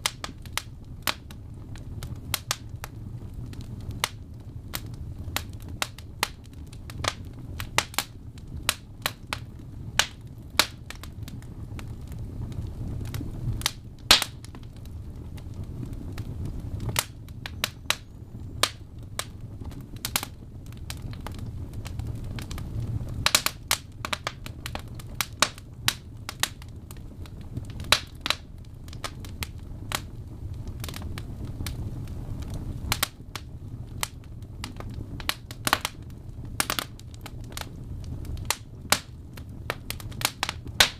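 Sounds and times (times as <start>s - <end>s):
low rumble of flames: 0.0s - 40.9s
wood fire crackling: 0.0s - 40.9s
sharp pops and snaps: 10.0s - 11.1s, 13.1s - 14.6s, 39.7s - 40.9s.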